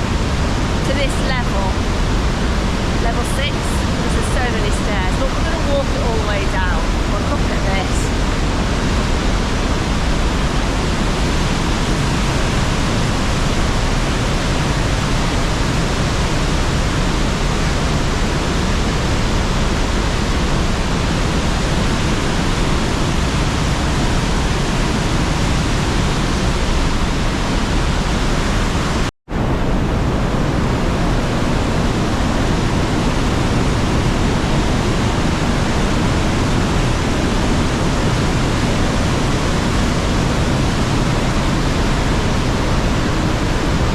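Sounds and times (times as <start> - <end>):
rush of falling water: 0.0 - 43.9.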